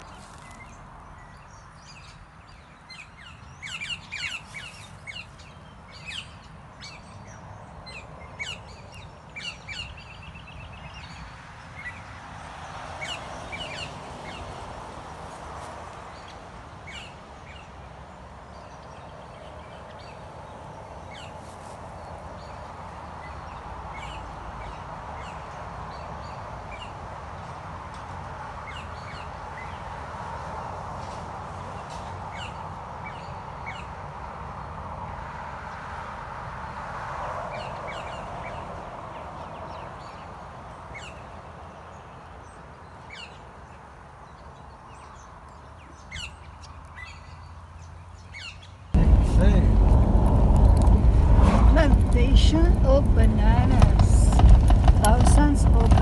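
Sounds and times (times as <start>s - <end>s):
birds chirping: 0.0s - 34.8s, 37.5s - 56.0s
steady low rumble: 49.0s - 56.0s
steady rushing noise: 49.0s - 56.0s.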